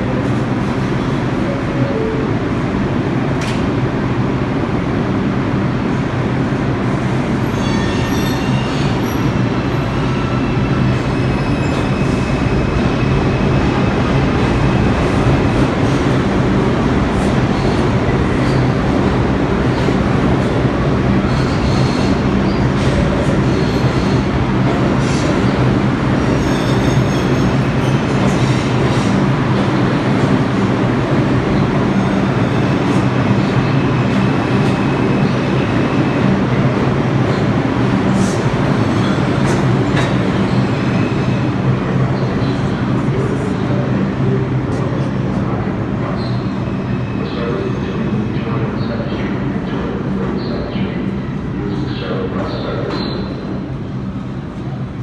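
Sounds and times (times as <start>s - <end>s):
subway train rumbling: 0.0s - 55.0s
high wheel squeals: 7.4s - 9.4s.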